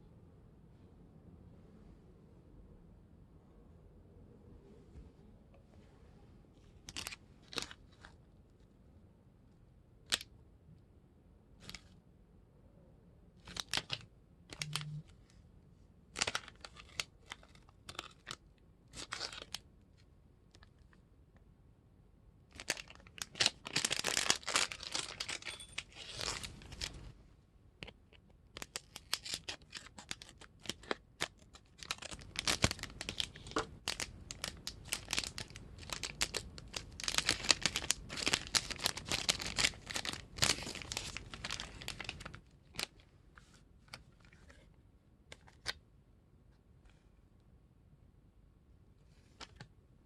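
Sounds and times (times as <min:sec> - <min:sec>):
plastic wrapper crinkling: 0:06.8 - 0:08.2, 0:13.4 - 0:15.1, 0:16.2 - 0:19.6, 0:22.5 - 0:27.1, 0:27.8 - 0:43.0.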